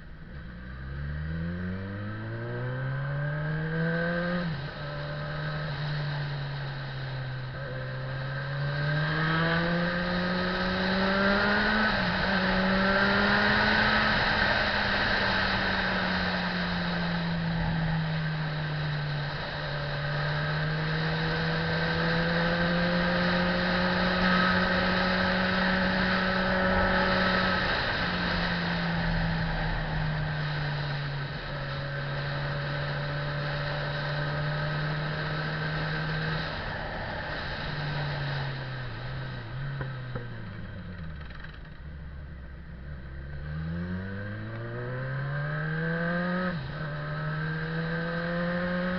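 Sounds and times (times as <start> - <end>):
motorcycle engine shifting gears: 0.3 - 48.9
steady rushing noise: 11.6 - 41.8.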